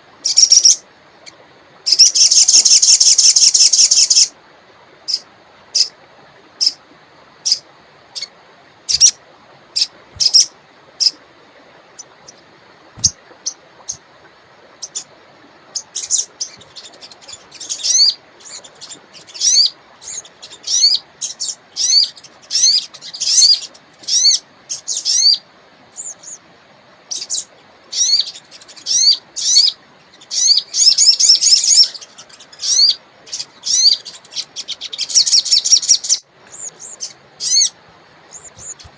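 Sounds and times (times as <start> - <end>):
songbird chirping and trilling: 0.2 - 4.3, 8.9 - 9.2, 9.8 - 11.2, 14.8 - 25.4, 26.0 - 26.4, 27.1 - 38.9
river water rushing: 4.2 - 30.8, 31.6 - 38.9.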